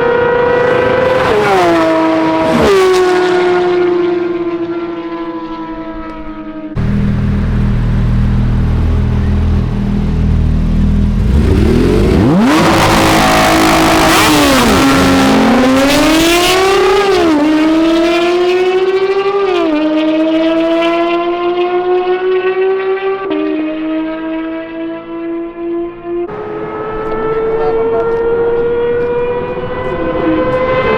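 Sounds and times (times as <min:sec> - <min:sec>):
sports car engine accelerating: 0:00.0 - 0:30.9
loud low rumble: 0:06.8 - 0:18.7.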